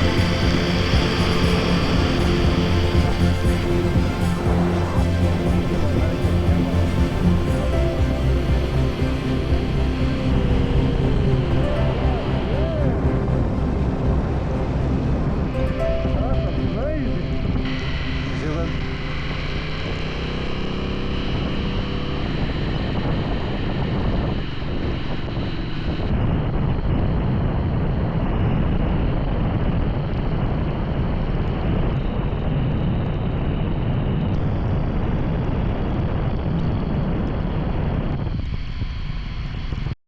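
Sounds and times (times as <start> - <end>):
motorcycle engine running: 0.0 - 15.6
wind rushing over microphone: 0.0 - 40.0.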